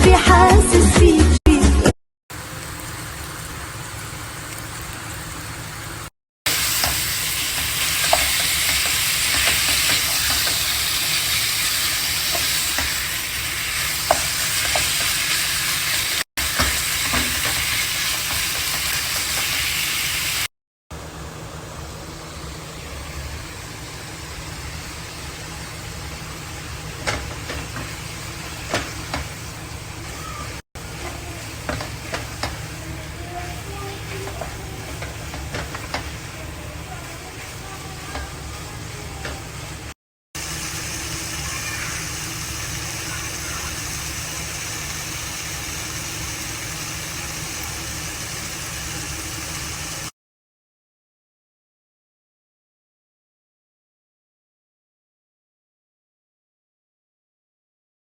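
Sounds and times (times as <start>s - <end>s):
food sizzling in a pan: 2.3s - 20.5s, 22.1s - 50.1s
utensil clicking in a pan: 6.7s - 13.0s, 14.0s - 15.3s.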